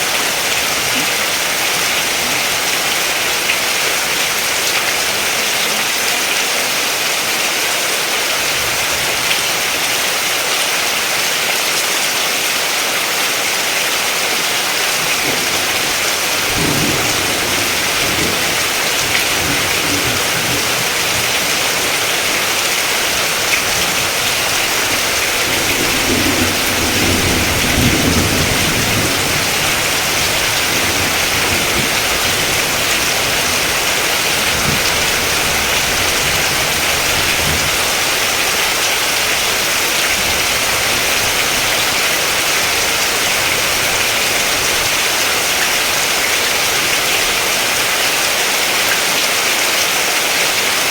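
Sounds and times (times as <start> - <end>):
heavy rain hissing: 0.0 - 50.9
thunder rumbling: 14.8 - 47.2.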